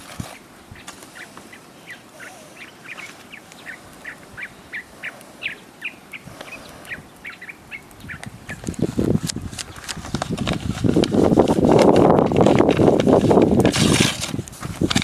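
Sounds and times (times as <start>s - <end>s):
faint background hiss: 0.0s - 9.4s
bird chirping rapidly: 0.7s - 8.6s.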